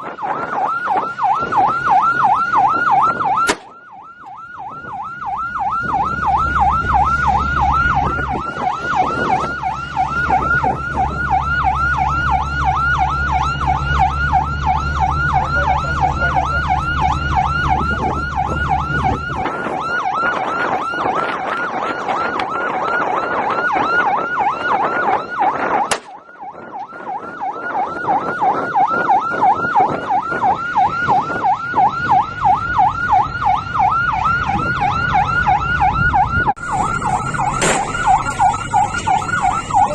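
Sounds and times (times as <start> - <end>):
electronic yelp siren: 0.0 - 39.9
low engine drone: 0.6 - 22.5, 30.4 - 39.9.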